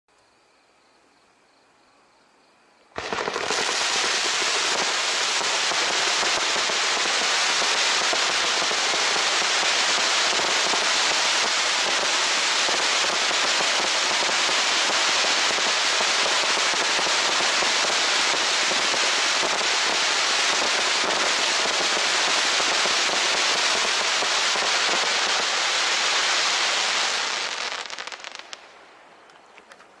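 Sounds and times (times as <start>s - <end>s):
firework cake crackling shots: 3.0s - 28.6s.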